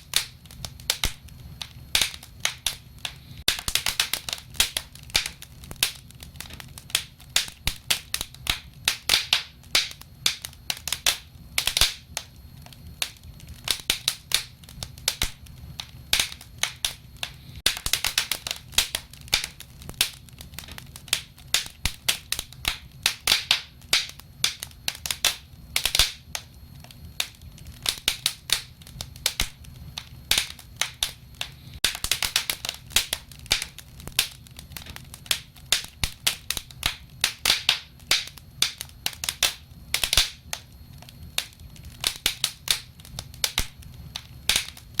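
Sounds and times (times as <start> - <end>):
wood fire crackling and popping: 0.0 - 45.0.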